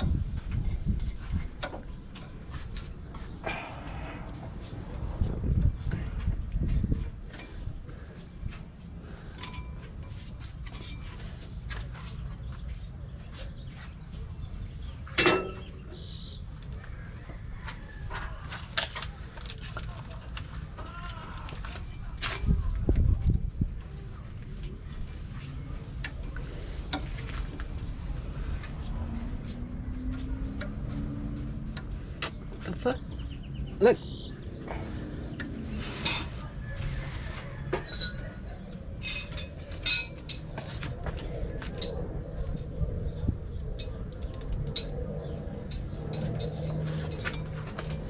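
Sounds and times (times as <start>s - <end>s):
loud ringing metal clank: 15.2s - 15.8s.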